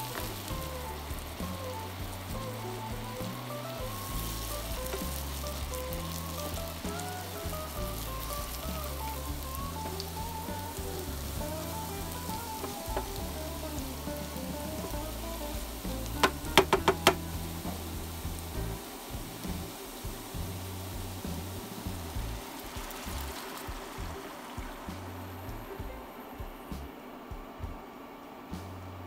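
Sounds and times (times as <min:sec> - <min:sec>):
mushrooms sizzling in oil: 0:00.0 - 0:26.9
wooden spatula knocking on pan: 0:12.0 - 0:13.4, 0:16.0 - 0:17.3.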